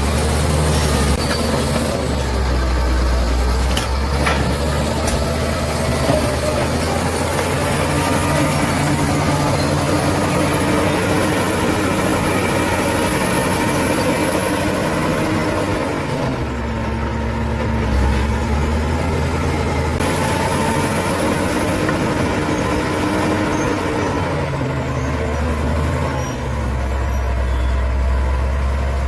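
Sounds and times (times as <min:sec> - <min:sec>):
bulldozer diesel engine running: 0:00.0 - 0:29.0.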